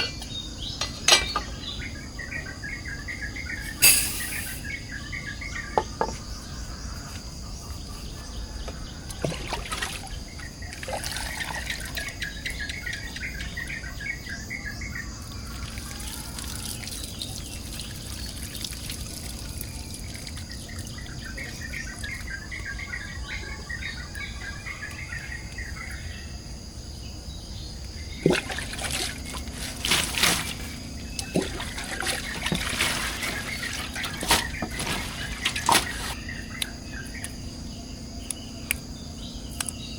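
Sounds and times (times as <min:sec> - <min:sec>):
insect drone: 0:00.0 - 0:39.9
bird trilling: 0:03.3 - 0:05.0
water trickling: 0:09.2 - 0:12.6, 0:15.2 - 0:22.6, 0:28.2 - 0:36.2.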